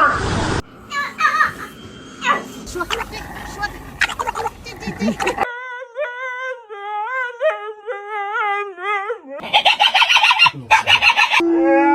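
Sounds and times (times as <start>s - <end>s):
dog howling: 0.8s - 11.9s
raspy dog vocal sounds: 0.9s - 5.5s, 7.4s - 11.4s.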